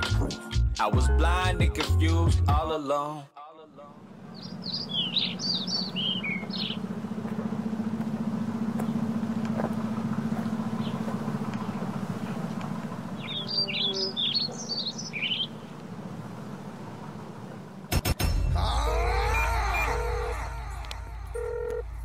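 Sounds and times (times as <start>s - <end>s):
birds chirping: 4.0s - 17.9s
steady low hum: 4.0s - 22.0s.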